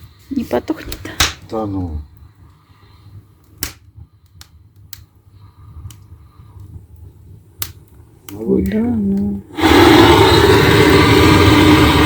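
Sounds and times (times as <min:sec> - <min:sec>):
firewood crackling and popping: 0:00.0 - 0:12.0.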